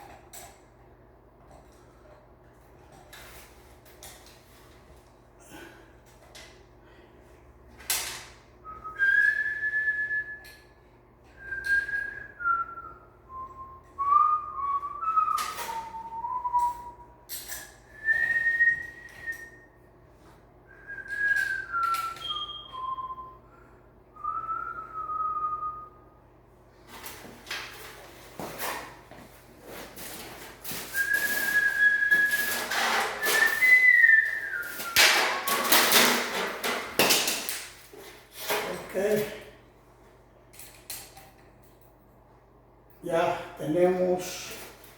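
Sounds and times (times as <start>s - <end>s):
person whistling a tune: 8.6s - 10.6s, 11.4s - 17.2s, 17.9s - 19.8s, 20.7s - 23.6s, 24.2s - 26.1s, 30.7s - 35.9s.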